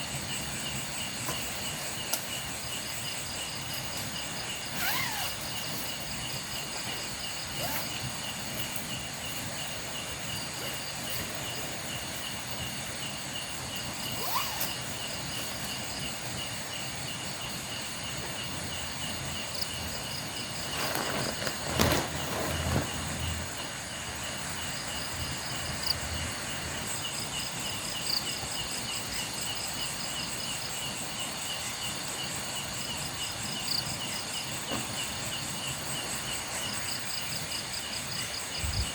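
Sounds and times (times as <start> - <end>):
crickets trilling: 0.0 - 38.9
thump and rustle: 20.6 - 23.3, 34.7 - 35.0.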